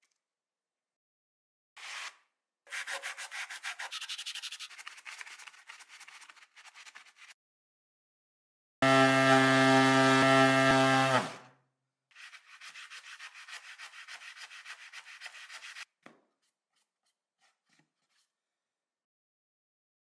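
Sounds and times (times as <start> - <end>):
sponge rubbing on wood: 2.7 - 7.3, 12.2 - 18.4
electric sander motor hum: 8.8 - 11.3.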